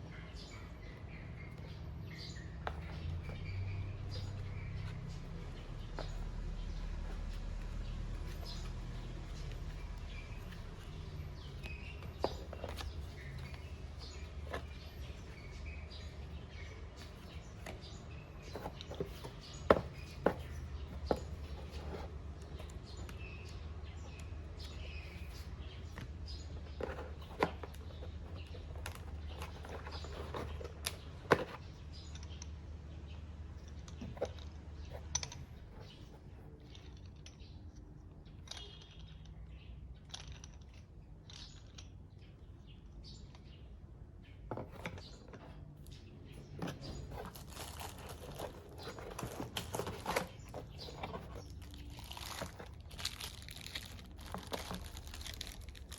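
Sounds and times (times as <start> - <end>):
small knocks and clicks: 0.1 - 55.9
packaging rustling and crinkling: 46.6 - 55.9.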